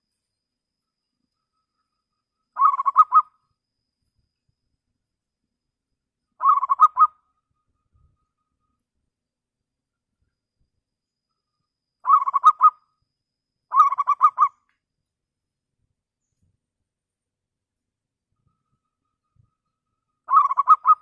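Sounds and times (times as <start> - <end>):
dove cooing: 20.3 - 21.0.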